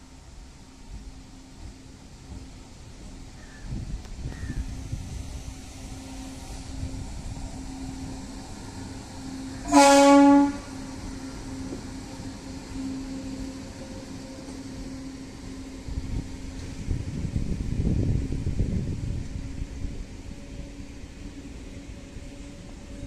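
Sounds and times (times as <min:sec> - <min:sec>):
train hum and rumble: 0:00.0 - 0:23.0
train horn blast: 0:09.2 - 0:16.0.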